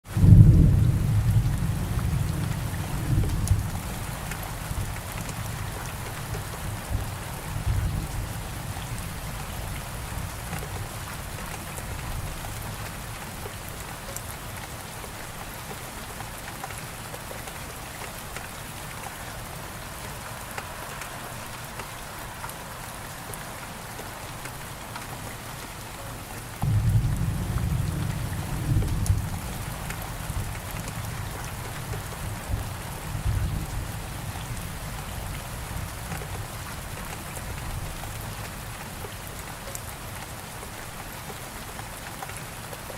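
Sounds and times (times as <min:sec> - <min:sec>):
heavy rainfall: 0:00.0 - 0:42.9
thunder rumbling: 0:00.1 - 0:11.0, 0:26.6 - 0:36.1.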